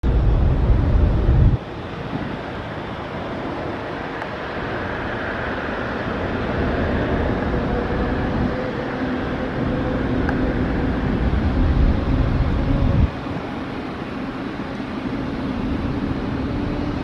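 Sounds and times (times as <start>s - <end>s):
jet engines roaring: 0.0s - 17.0s
wind buffeting microphone: 0.0s - 17.0s.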